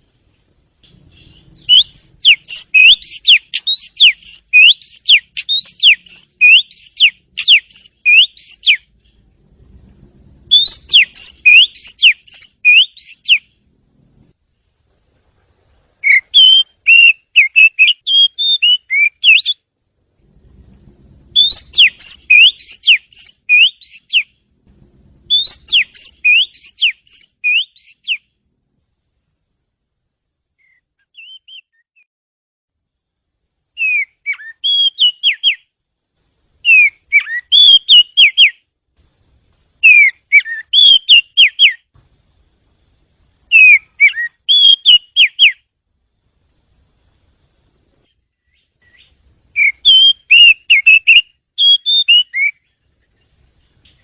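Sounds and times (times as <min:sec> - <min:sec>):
bird whistling song: 0:00.8 - 0:09.2, 0:10.5 - 0:13.6, 0:16.0 - 0:19.6, 0:21.3 - 0:24.4, 0:25.3 - 0:28.4, 0:30.6 - 0:32.0, 0:33.8 - 0:35.7, 0:36.6 - 0:38.6, 0:39.8 - 0:41.9, 0:43.5 - 0:45.7, 0:48.1 - 0:54.0.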